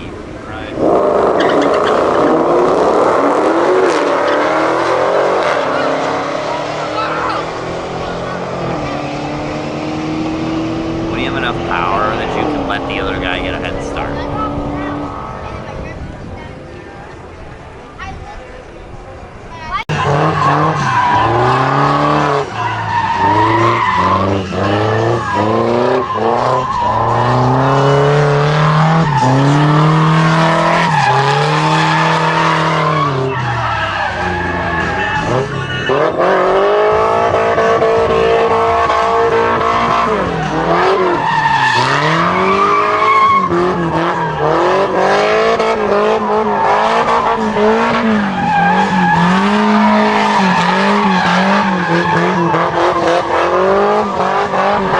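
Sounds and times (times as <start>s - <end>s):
car engine revving: 0.0s - 18.6s, 19.3s - 54.9s
tyres squealing: 19.9s - 36.6s, 39.8s - 45.5s.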